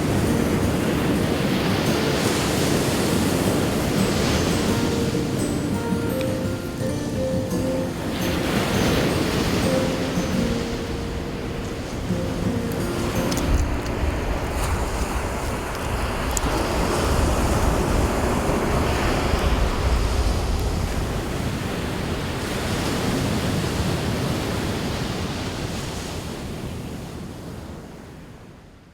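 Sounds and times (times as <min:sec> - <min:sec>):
ocean surf washing ashore: 0:00.0 - 0:28.6
wind buffeting microphone: 0:07.9 - 0:25.0.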